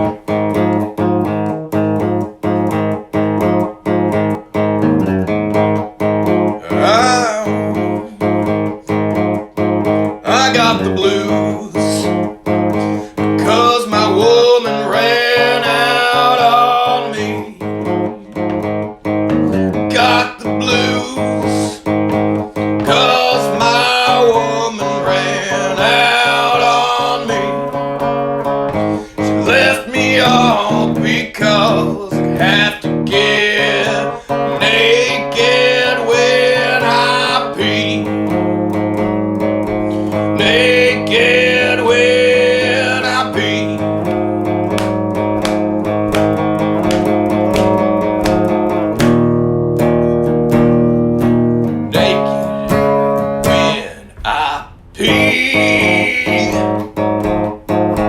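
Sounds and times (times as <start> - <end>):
guitar playing: 0.0 - 58.0
person singing: 6.4 - 9.1, 10.0 - 18.7, 19.7 - 38.8, 39.8 - 48.5, 51.9 - 56.9.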